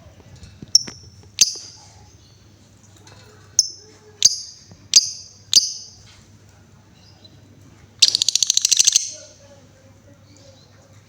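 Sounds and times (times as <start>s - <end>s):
bird giving sharp high calls: 3.6s - 6.0s, 8.0s - 9.4s.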